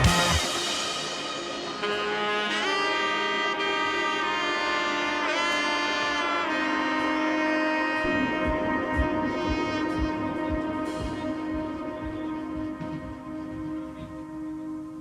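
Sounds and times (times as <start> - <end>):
low beat: 0.0 - 3.1, 7.2 - 15.0
saxophone melody: 0.0 - 15.0
soft accompaniment: 0.0 - 15.0.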